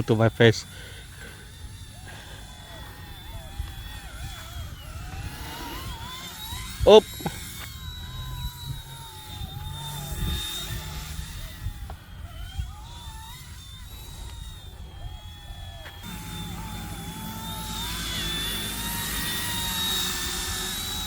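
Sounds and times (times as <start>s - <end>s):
rc helicopter motors whining: 0.0s - 21.0s
wind rumble on microphone: 3.1s - 15.8s.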